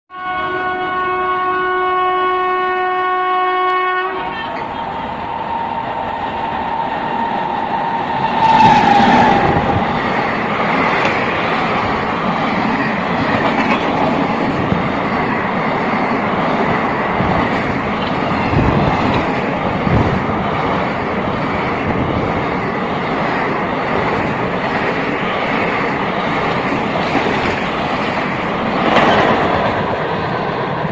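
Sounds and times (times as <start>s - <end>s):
locomotive horn: 0.1s - 4.9s
train coaches rushing and rattling: 3.7s - 30.9s.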